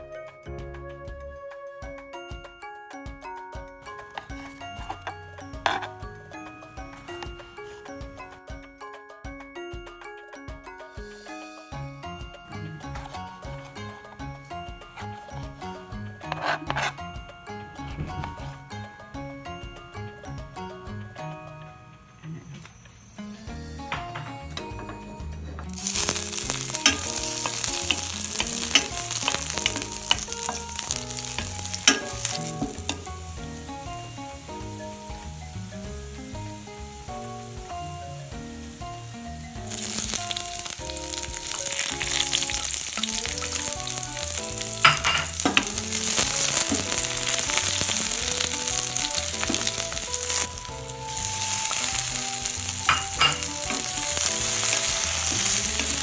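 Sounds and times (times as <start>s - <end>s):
stirring in a pan: 4.0s - 6.0s, 16.2s - 17.0s, 25.8s - 35.6s, 39.6s - 56.0s
garlic sizzling in oil: 25.7s - 56.0s
vegetables sizzling: 25.7s - 56.0s.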